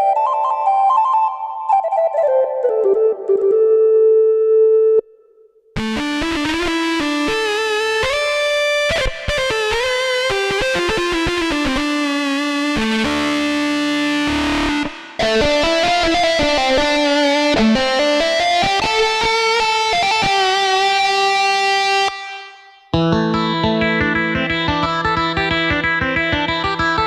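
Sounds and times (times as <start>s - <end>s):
keyboard playing plucked melody: 0.0s - 4.6s, 10.5s - 27.0s.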